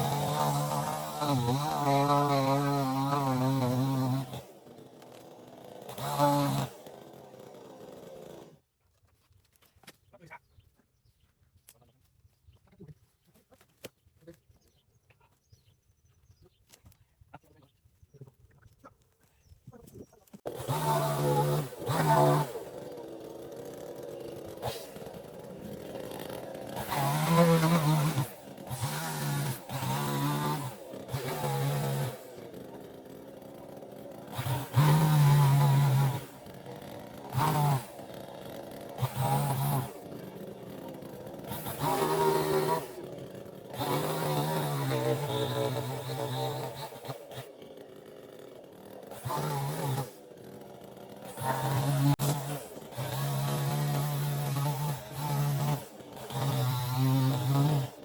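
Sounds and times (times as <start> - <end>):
chainsaw engine revving: 0.0 - 8.6, 20.4 - 58.0.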